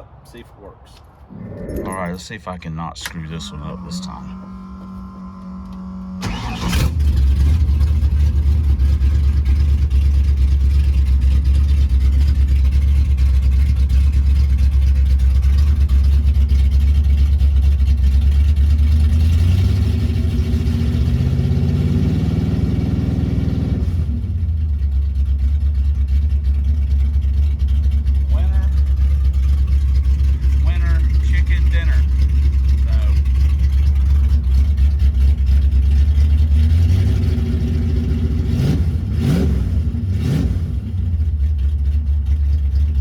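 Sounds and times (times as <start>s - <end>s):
car engine revving: 1.3s - 11.0s, 19.0s - 24.5s, 27.9s - 43.0s
car engine starting and idling: 1.3s - 43.0s.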